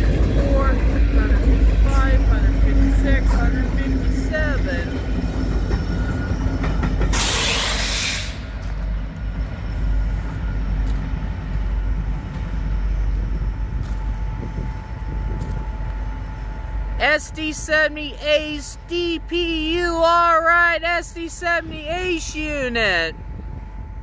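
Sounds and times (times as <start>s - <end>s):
diesel locomotives rumbling past: 0.0s - 24.0s
loud air hiss: 7.2s - 8.5s.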